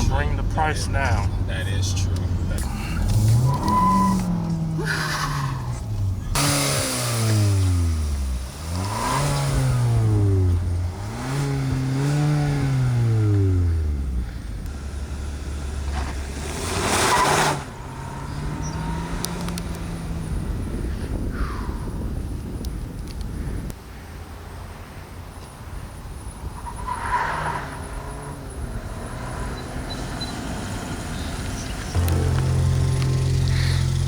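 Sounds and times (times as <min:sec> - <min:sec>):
car engine revving: 0:00.0 - 0:20.7, 0:27.7 - 0:34.0.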